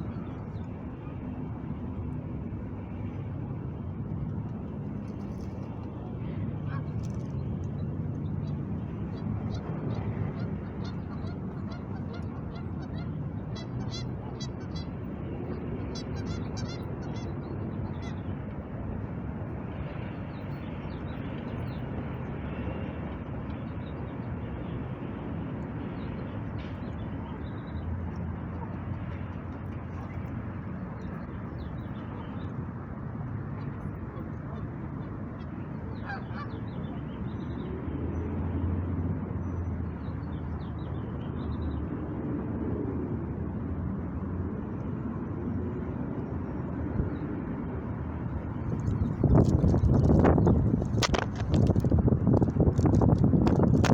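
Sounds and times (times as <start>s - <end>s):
low city rumble: 0.0s - 53.9s
geese honking: 9.5s - 14.9s, 15.9s - 17.3s, 36.0s - 36.6s.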